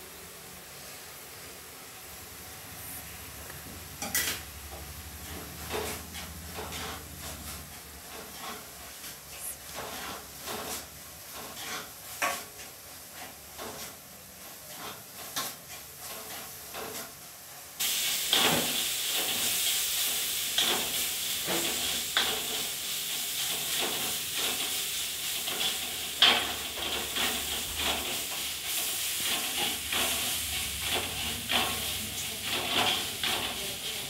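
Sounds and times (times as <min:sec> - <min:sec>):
food sizzling in pan: 0:00.0 - 0:34.0
wooden spatula scraping pan: 0:04.0 - 0:17.2.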